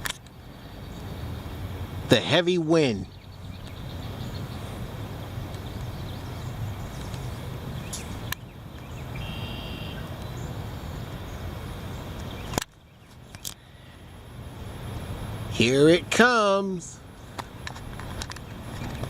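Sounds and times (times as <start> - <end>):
wind blowing on microphone: 0.0 - 9.3, 14.5 - 19.0.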